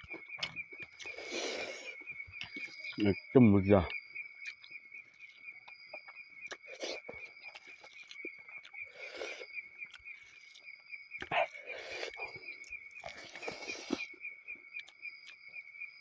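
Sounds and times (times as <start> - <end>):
chewing and lip smacks: 0.0 - 3.0, 3.9 - 15.7
insects chirping: 0.0 - 16.0.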